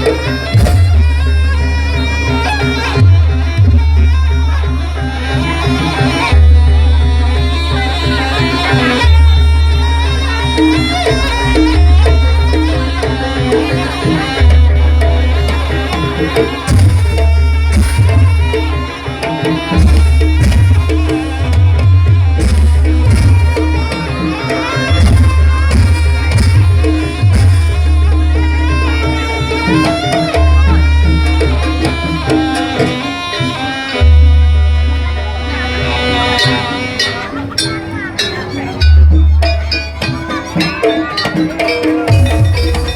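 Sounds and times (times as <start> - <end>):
deep booming low notes: 0.0 - 1.6, 16.7 - 18.9, 19.7 - 24.2
steady drumming: 0.0 - 42.9
wavering high melody: 0.0 - 42.9.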